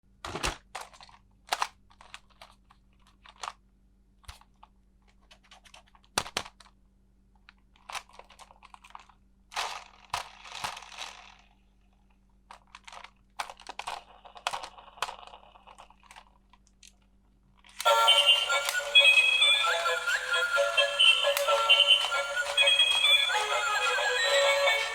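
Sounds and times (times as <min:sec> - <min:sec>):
melodic music: 0:17.9 - 0:24.9.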